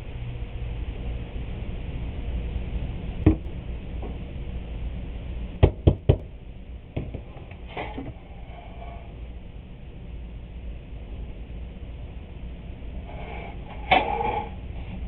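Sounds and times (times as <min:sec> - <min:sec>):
low steady hum: 0:00.0 - 0:15.0
hard objects knocking: 0:03.2 - 0:03.5, 0:05.6 - 0:06.3, 0:06.9 - 0:08.1.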